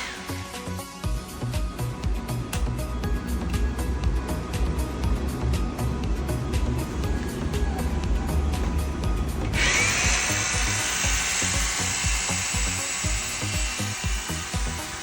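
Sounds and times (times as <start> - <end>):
background music with steady beat: 0.0 - 15.0
rotary hammer whining: 0.0 - 15.0.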